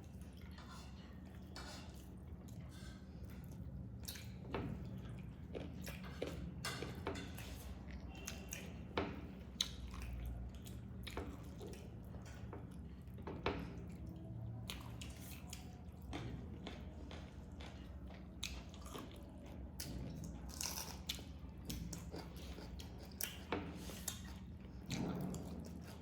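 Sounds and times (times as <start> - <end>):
wet chewing mouth noises: 20.6 - 24.9.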